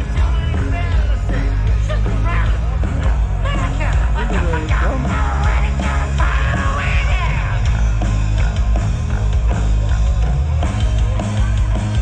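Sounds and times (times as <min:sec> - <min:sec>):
person singing: 0:00.0 - 0:07.9
loud rock music: 0:00.0 - 0:12.0.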